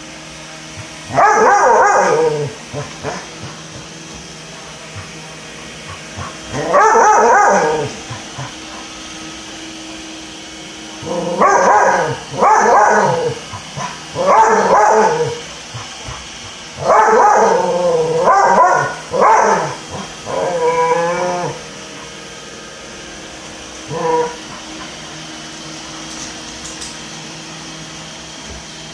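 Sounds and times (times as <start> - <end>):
robot vacuum humming: 0.0 - 28.9
dog barking and whining: 0.8 - 9.0, 11.0 - 22.2, 23.8 - 25.0.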